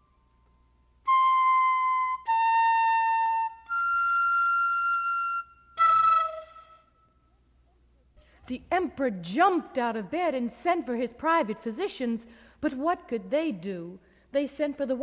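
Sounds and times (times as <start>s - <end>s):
flute playing solo: 1.0s - 7.1s.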